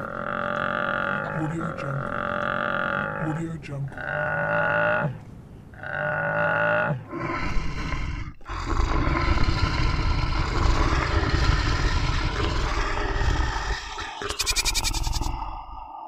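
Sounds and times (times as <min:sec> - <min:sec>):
animal bleat: 0:00.0 - 0:05.2, 0:14.3 - 0:15.3
deep rasping animal roar: 0:00.0 - 0:05.2, 0:05.8 - 0:16.0.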